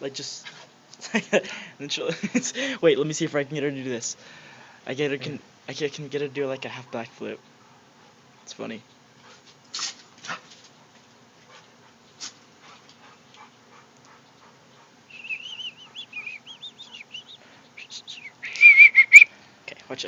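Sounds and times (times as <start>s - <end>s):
puppy whining: 14.1s - 17.4s.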